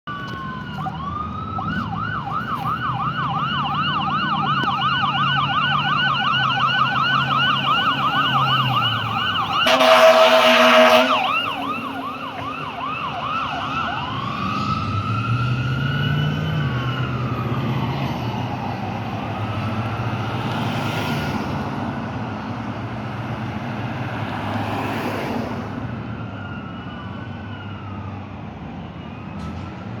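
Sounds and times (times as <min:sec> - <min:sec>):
diesel engine rumble: 0:00.0 - 0:20.4
fire engine siren: 0:00.1 - 0:30.0
loud horn blast: 0:09.4 - 0:12.0.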